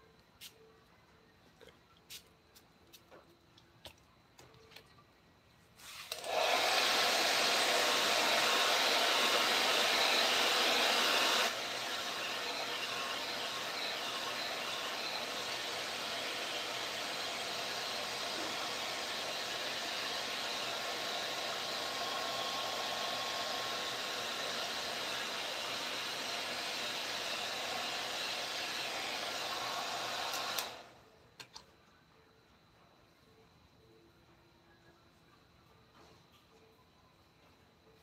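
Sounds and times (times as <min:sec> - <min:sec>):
small blower whooshing hiss: 0:05.8 - 0:31.0.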